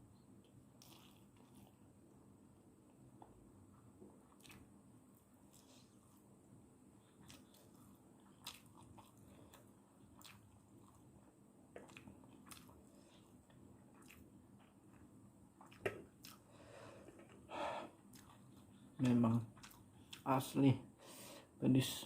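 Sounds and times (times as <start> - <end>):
person chewing noodles: 0.4 - 2.0, 4.2 - 6.2, 7.0 - 20.4.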